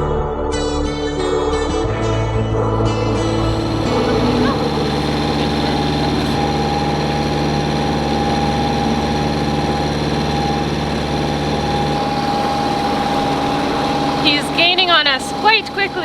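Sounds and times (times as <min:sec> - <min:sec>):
boat engine drone: 0:02.8 - 0:16.0
thin steady whine: 0:02.8 - 0:16.0.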